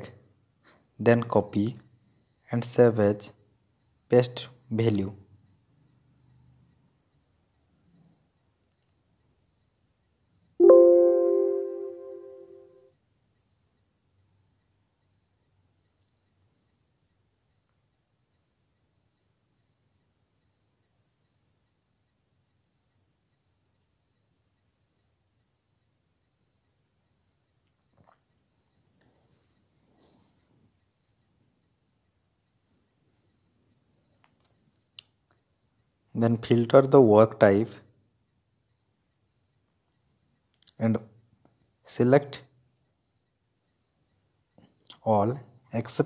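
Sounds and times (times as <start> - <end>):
faint high-pitched recording noise: 0.0 - 21.4, 23.3 - 46.0
music note: 10.6 - 12.7.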